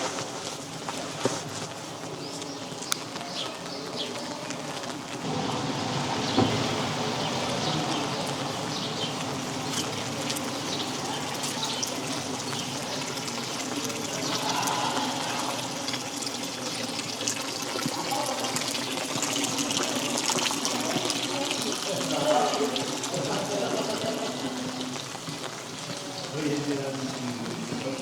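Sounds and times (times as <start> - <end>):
steady rain: 0.0 - 28.0
water running and trickling: 0.2 - 28.0.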